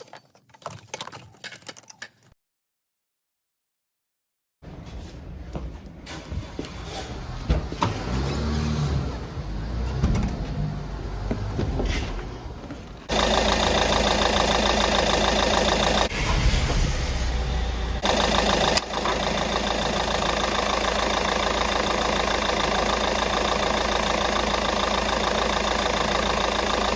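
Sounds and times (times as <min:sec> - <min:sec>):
car engine idling: 0:12.4 - 0:26.9.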